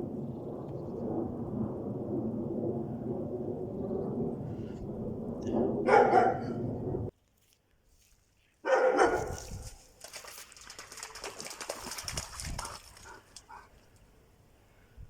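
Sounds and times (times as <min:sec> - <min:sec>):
steady low rumble: 0:00.0 - 0:07.1
dog barking: 0:05.8 - 0:06.6, 0:08.6 - 0:09.6.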